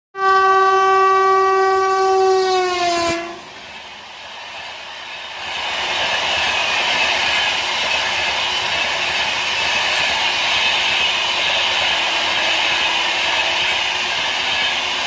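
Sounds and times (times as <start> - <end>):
locomotive air horn blast: 0.2 - 3.5.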